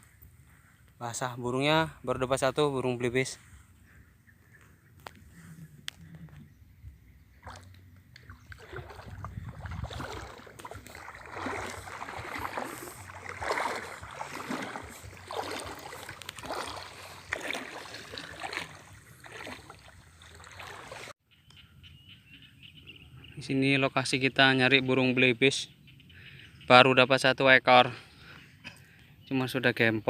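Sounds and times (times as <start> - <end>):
legs wading through water: 7.2 - 21.2.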